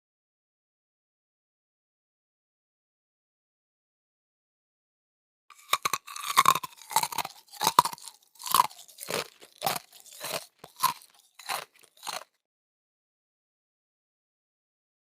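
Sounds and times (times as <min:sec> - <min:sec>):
crunchy scraping strokes: 0:05.5 - 0:12.2.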